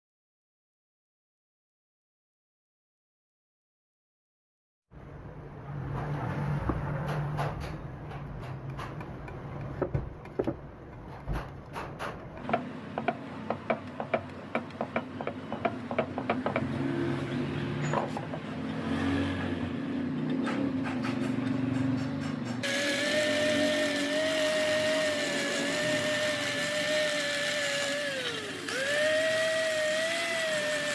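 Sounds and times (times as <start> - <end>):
sharp clicks and taps on metal: 7.0 - 16.7.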